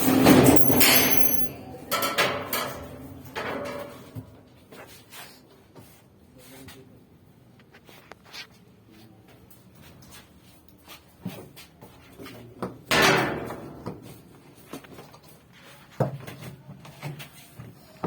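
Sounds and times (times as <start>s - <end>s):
hard objects clattering and knocking: 0.4s - 1.5s.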